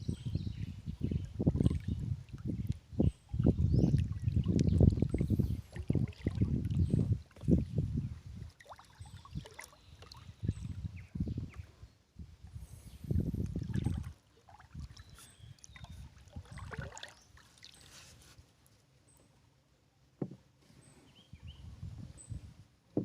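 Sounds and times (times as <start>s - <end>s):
water trickling: 1.3s - 7.8s, 13.2s - 18.1s
paddle splashing in water: 3.9s - 7.7s, 8.5s - 10.6s, 13.4s - 18.4s.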